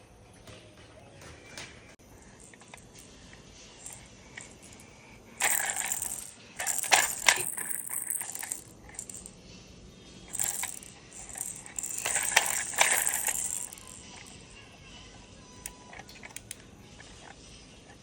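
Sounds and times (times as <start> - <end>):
small hard objects rattling: 5.4 - 9.3, 10.3 - 14.4.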